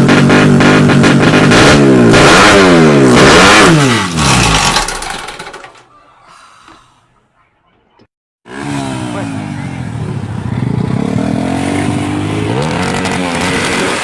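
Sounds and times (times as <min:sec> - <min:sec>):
motorcycle engine revving hard: 0:00.0 - 0:05.5, 0:08.4 - 0:14.0.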